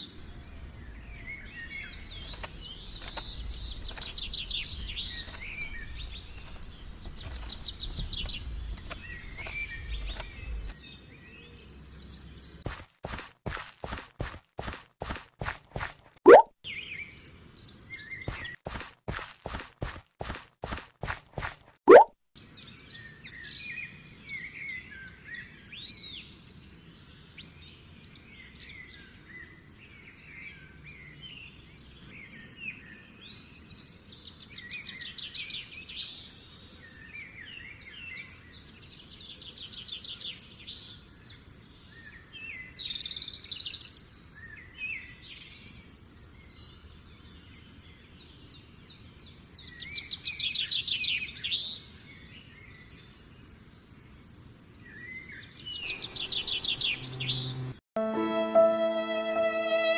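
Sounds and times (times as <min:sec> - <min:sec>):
faint outdoor noise: 0:00.0 - 0:21.7, 0:22.4 - 0:57.8
birds chirping and calling: 0:00.1 - 0:12.8, 0:55.4 - 0:57.7
bird trilling: 0:55.8 - 0:57.7.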